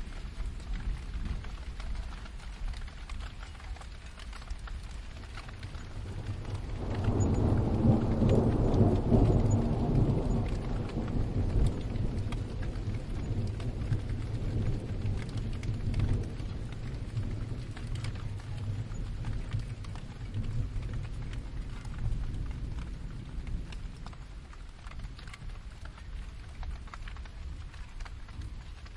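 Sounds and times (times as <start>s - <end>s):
steady rain: 0.0s - 28.9s
rolling thunder: 5.3s - 26.2s.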